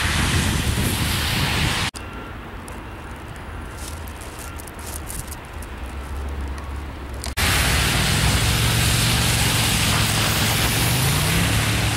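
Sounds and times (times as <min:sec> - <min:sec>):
wind rumble on microphone: 0:00.0 - 0:11.9
loud steady hiss: 0:07.4 - 0:11.9.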